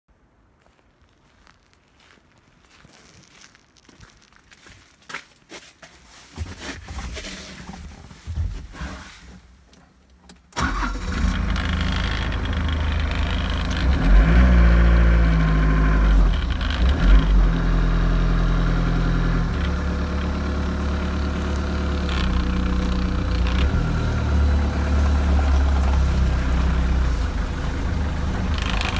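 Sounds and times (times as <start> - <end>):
rustling: 0.6 - 14.4, 19.0 - 28.9
diesel engine starting and running: 10.5 - 28.9.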